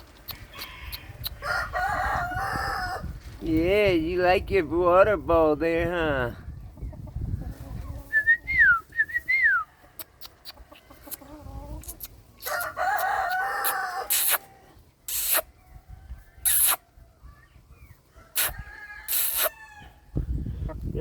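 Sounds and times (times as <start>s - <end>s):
chickens calling: 0.0s - 3.4s, 6.4s - 21.0s
rooster crowing: 0.6s - 3.1s, 12.4s - 14.2s
chickens squawking: 9.8s - 21.0s.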